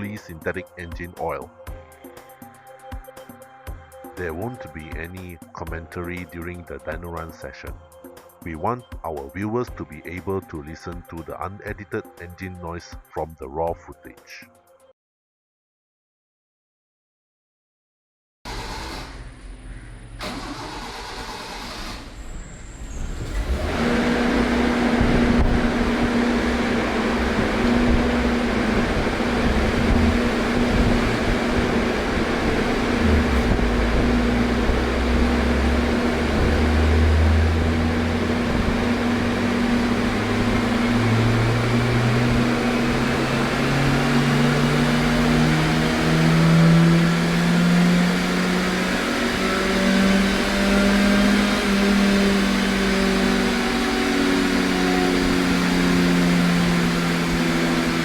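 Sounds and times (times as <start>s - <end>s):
car engine revving: 20.2s - 58.0s
constant steady hum: 23.4s - 45.3s.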